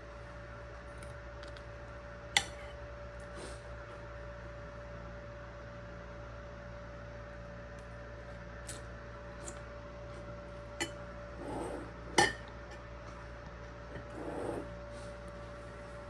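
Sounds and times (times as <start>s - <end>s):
steady hum: 0.0s - 16.0s
utensils clinking against dishes: 12.2s - 12.8s.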